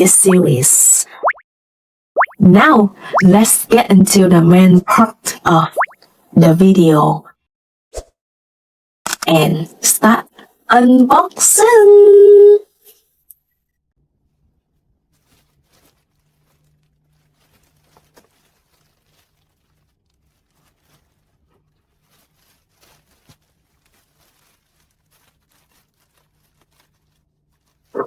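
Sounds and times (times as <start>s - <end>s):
faint rustling: 14.7s - 28.0s.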